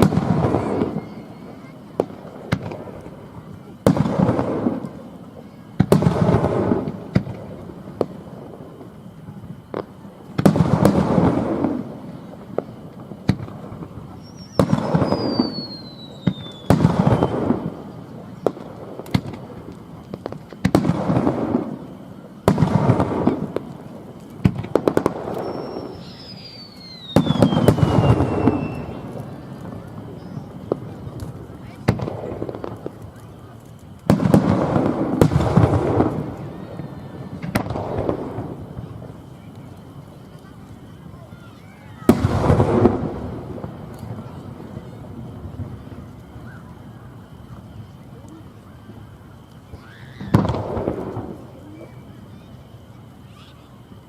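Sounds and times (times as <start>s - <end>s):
firework whistle gliding down: 0.0s - 2.8s, 14.0s - 18.6s, 24.8s - 31.6s, 45.6s - 52.6s
firework shells bursting: 0.0s - 40.9s.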